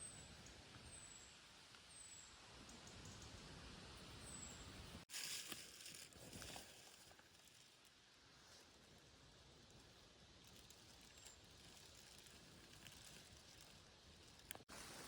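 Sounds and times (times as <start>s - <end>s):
rustling: 5.1s - 9.1s, 9.7s - 15.0s.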